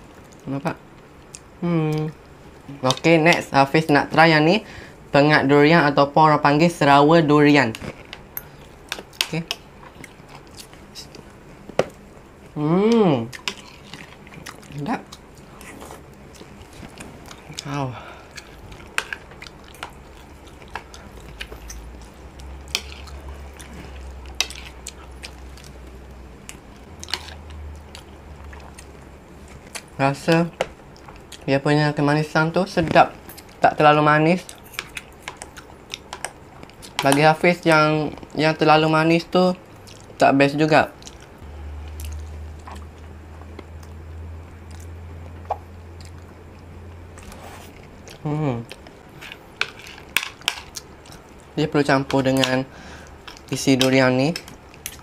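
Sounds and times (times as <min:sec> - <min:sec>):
low steady hum: 0:00.0 - 0:55.0
chewing and wet squishing: 0:07.7 - 0:31.6, 0:32.6 - 0:38.4, 0:39.6 - 0:40.2, 0:40.9 - 0:55.0.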